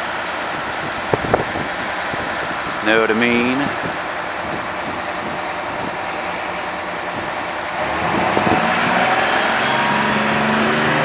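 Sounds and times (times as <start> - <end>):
bus diesel engine drone: 0.0 - 11.0
road noise: 0.0 - 11.0.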